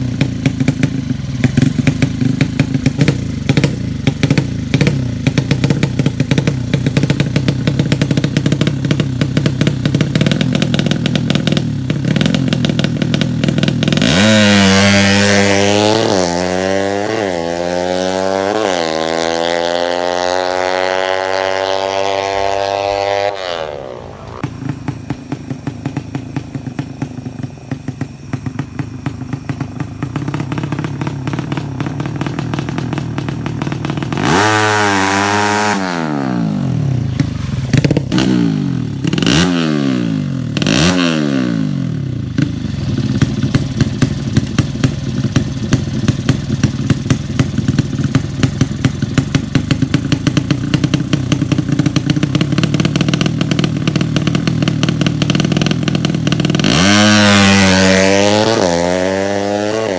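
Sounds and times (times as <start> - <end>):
exhaust pops and crackles: 0.0 - 16.4, 24.2 - 35.0, 42.3 - 59.3
motorcycle engine revving: 0.0 - 59.9.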